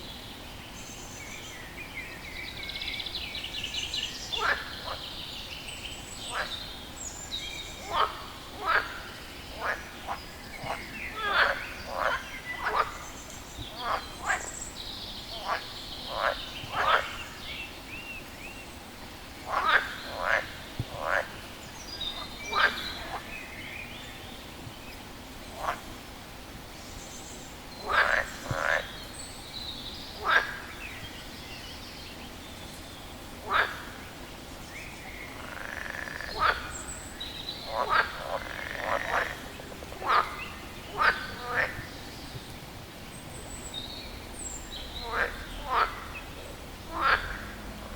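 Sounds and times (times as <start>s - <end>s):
frog croaking: 7.8s - 13.0s, 15.4s - 17.2s, 19.5s - 21.4s, 22.2s - 23.2s, 27.8s - 29.0s, 30.2s - 30.7s, 33.5s - 33.9s, 35.3s - 36.8s, 37.6s - 41.9s, 45.0s - 46.3s, 46.9s - 47.9s.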